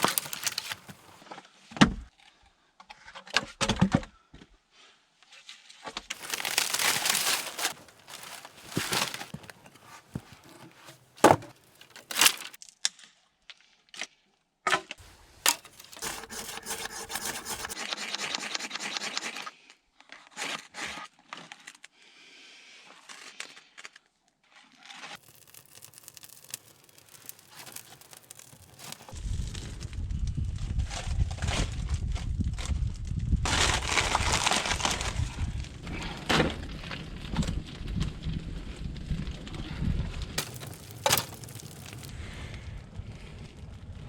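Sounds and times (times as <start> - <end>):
scraping and rustling: 0.0 - 1.2, 6.1 - 12.6, 15.0 - 17.8, 25.0 - 29.2, 40.4 - 42.1.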